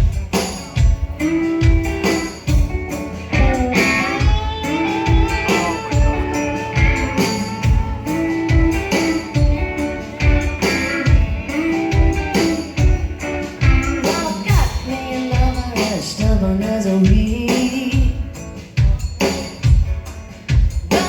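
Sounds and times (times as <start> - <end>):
live blues-rock band: 0.0 - 21.0
steady drum beat: 0.0 - 21.0
person singing: 13.4 - 18.3.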